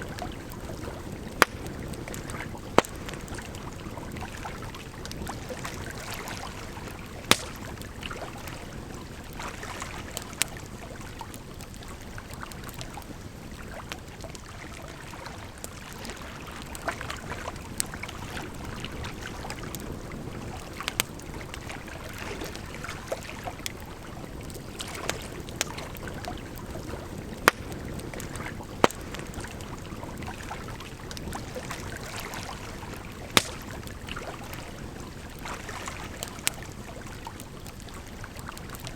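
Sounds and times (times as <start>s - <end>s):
campfire crackling and popping: 0.0s - 38.9s
flowing water: 0.0s - 38.9s.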